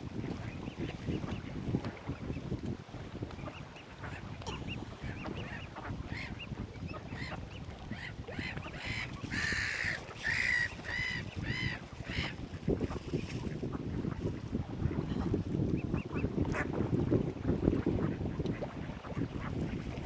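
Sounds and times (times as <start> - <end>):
waterbirds calling harshly: 3.4 - 12.5.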